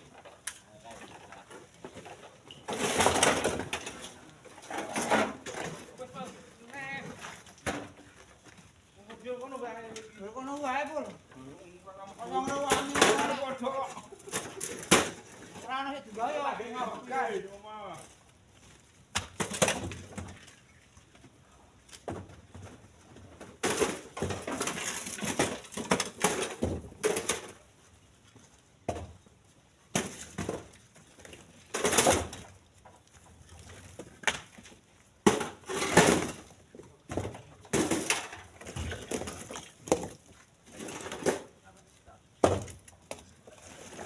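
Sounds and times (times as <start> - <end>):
stones clattering into truck bed: 1.7 - 6.0, 19.2 - 20.5, 22.0 - 27.7, 29.9 - 32.6, 33.9 - 41.6.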